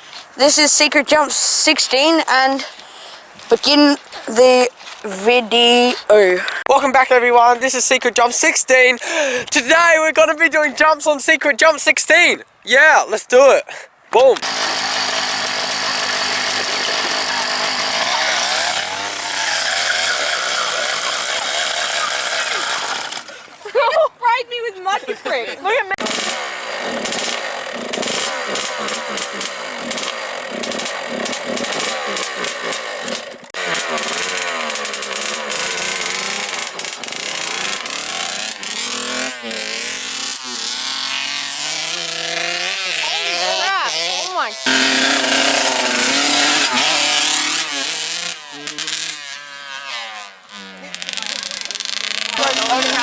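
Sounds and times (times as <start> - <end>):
dirt bike engine revving: 0.0 - 12.3, 14.3 - 25.0, 25.7 - 53.0.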